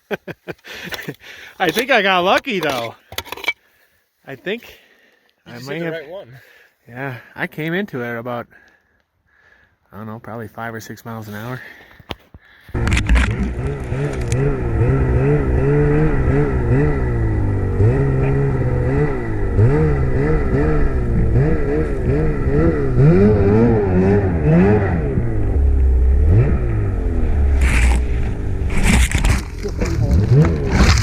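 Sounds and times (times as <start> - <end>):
snowmobile engine revving: 12.8 - 31.0.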